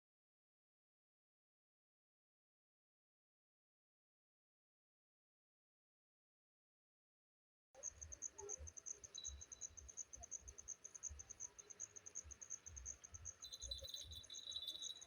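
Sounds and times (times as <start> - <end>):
faint cricket chirping: 7.8 - 15.0.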